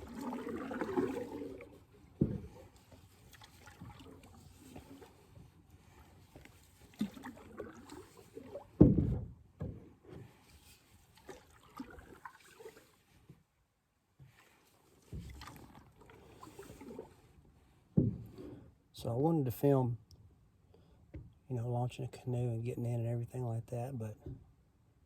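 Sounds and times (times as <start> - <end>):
water sloshing around a canoe: 0.0 - 18.9.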